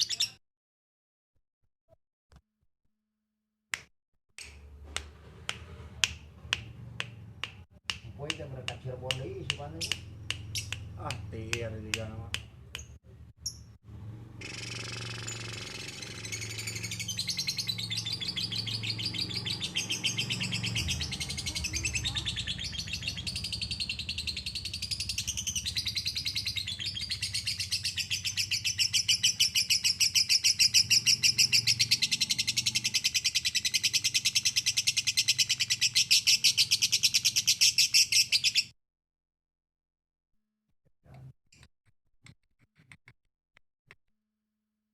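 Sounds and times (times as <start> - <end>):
songbird singing rapid notes: 9.0 - 11.2, 14.4 - 38.7.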